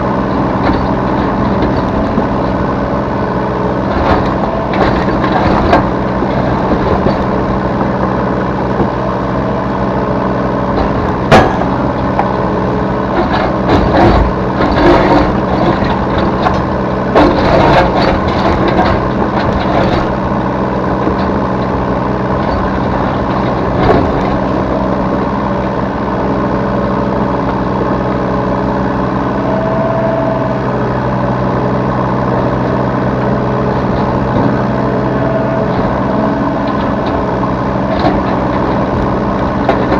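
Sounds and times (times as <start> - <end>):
diesel engine running: 0.0 - 39.9
clanking and knocking: 0.4 - 2.6, 3.8 - 8.0, 10.7 - 12.4, 13.1 - 25.3, 33.6 - 39.9
brief whine: 29.2 - 31.4.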